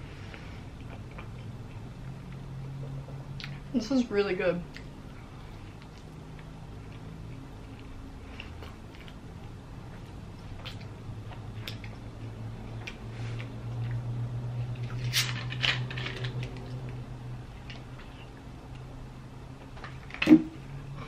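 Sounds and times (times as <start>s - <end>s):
low steady hum: 0.0s - 21.0s
chewing and mouth sounds: 0.3s - 3.7s, 4.6s - 15.4s.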